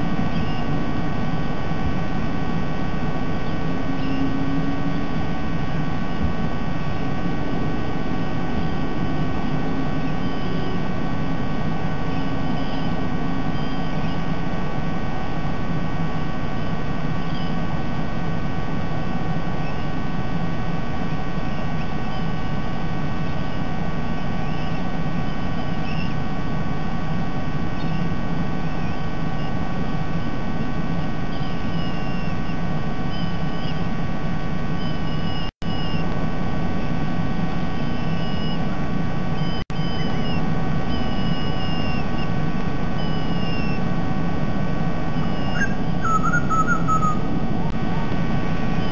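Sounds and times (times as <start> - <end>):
electrical hum and hiss: 0.0 - 48.9
faint bird chirps: 0.1 - 1.2, 3.3 - 5.4, 7.7 - 14.4, 16.5 - 17.7, 19.5 - 19.9, 21.4 - 22.6, 23.2 - 26.2, 27.7 - 30.4, 31.2 - 33.9, 34.7 - 36.1, 37.7 - 38.7, 39.4 - 43.8, 45.1 - 47.3.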